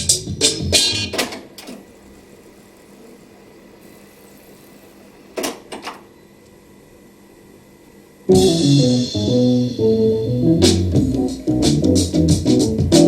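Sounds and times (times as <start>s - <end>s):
music from cassette deck: 0.0s - 1.8s, 8.3s - 13.0s
faint hiss and hum: 0.0s - 13.0s.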